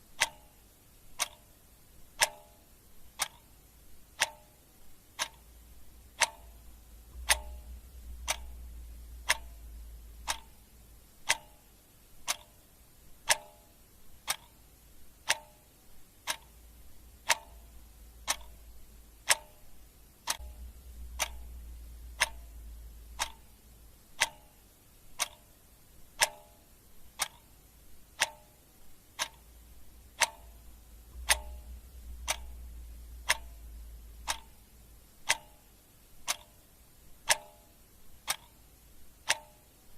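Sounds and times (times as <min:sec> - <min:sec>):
clock ticking: 0:00.0 - 0:39.9
faint low hum: 0:00.0 - 0:39.9.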